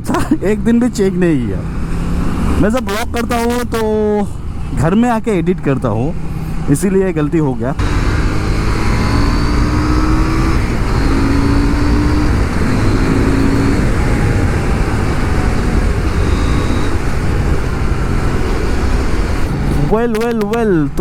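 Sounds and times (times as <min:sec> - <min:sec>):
motorcycle engine running: 0:00.0 - 0:21.0
wind rush on microphone: 0:07.8 - 0:21.0.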